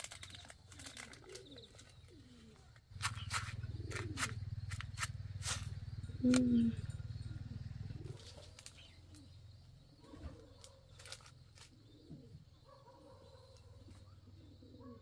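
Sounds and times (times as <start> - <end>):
faint low bird calls: 0.0 - 15.0.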